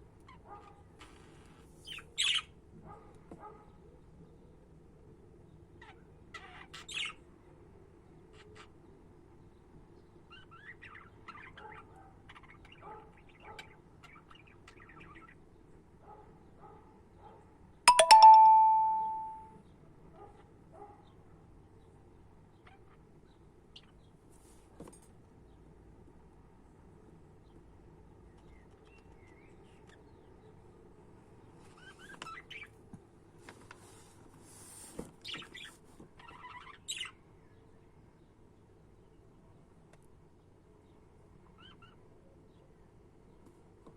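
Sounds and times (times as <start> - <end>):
low background noise: 0.0 - 43.9
bell struck and ringing: 17.9 - 19.5.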